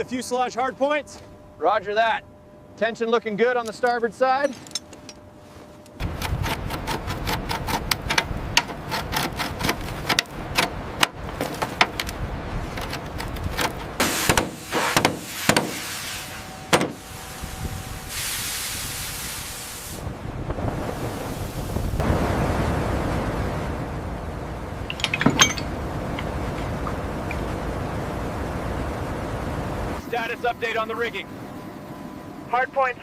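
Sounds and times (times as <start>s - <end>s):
steady hiss: 14.0s - 24.8s.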